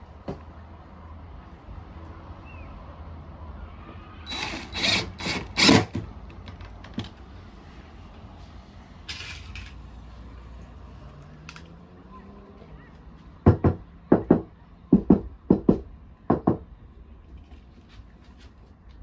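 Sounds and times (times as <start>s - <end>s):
power drill driving screws: 4.3s - 6.1s.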